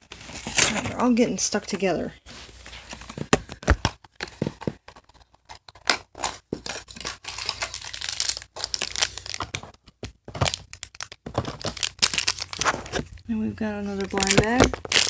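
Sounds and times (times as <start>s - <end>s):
plastic bags crinkling and tearing: 5.0s - 15.0s.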